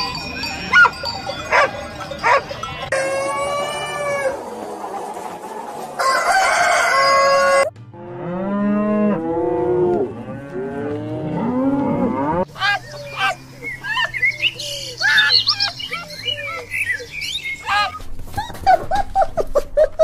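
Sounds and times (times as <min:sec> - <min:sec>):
chicken crowing: 0:02.9 - 0:07.7
cow mooing: 0:08.0 - 0:12.5.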